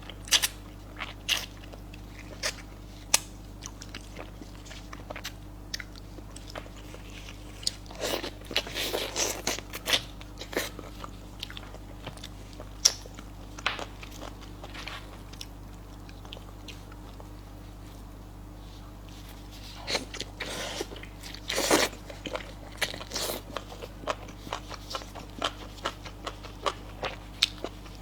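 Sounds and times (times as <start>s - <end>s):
chewing and crunching: 0.0s - 28.0s.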